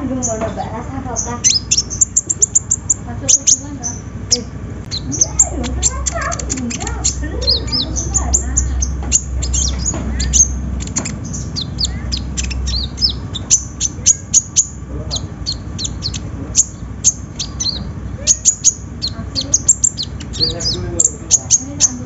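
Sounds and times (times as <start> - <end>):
bird chirping: 0.0 - 22.0
low rumble: 0.0 - 22.0.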